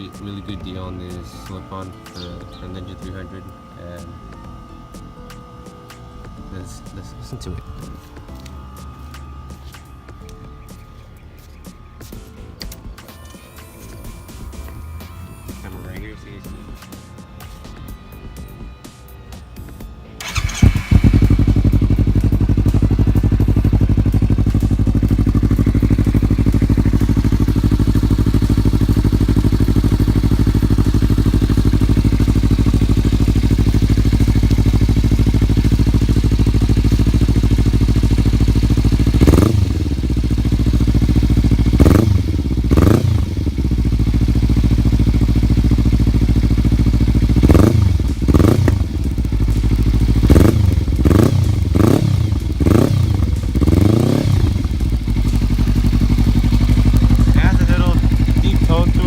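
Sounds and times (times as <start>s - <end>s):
motorcycle engine idling and revving: 19.6s - 59.0s.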